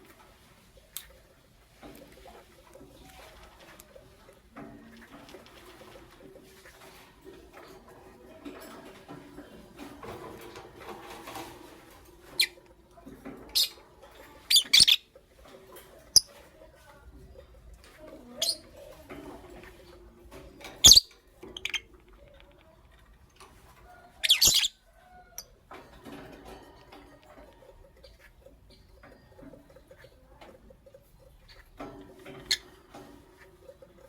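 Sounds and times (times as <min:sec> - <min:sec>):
lovebirds chirping: 0:14.5 - 0:15.1, 0:20.8 - 0:22.0, 0:24.2 - 0:24.8.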